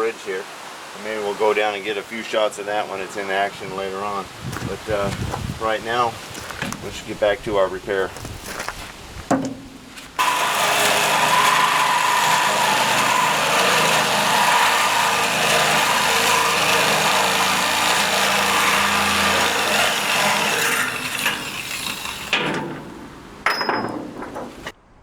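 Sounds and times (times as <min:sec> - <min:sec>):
angle grinder on steel: 0:10.2 - 0:22.5.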